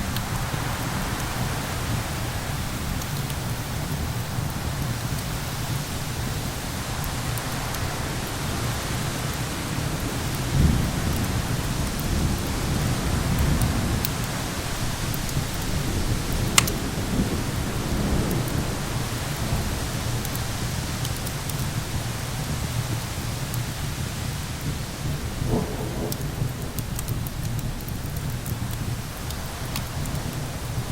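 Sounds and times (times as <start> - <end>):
rain: 0.0 - 30.9
wind: 0.0 - 30.9
wood fire crackling: 0.0 - 30.9
low rolling thunder: 7.2 - 30.9
fire popping: 10.7 - 18.6, 20.2 - 30.9.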